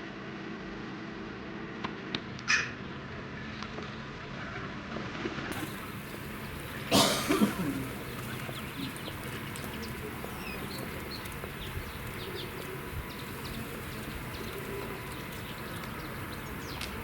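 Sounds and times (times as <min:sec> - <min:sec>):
city background noise: 0:00.0 - 0:17.0
small birds chirping: 0:05.5 - 0:17.0
pigeon cooing: 0:05.6 - 0:17.0.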